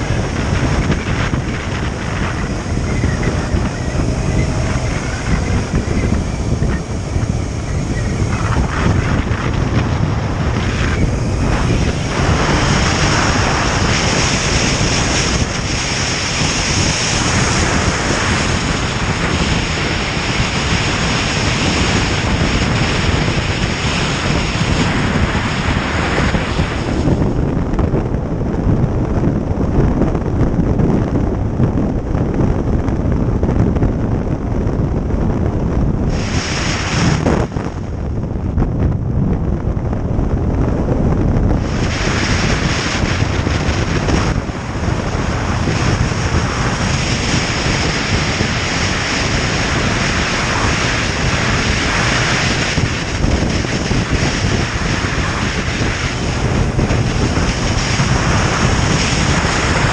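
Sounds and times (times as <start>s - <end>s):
motorcycle engine: 0.0s - 30.3s
road noise: 0.0s - 59.9s
wind rushing over microphone: 0.0s - 59.9s.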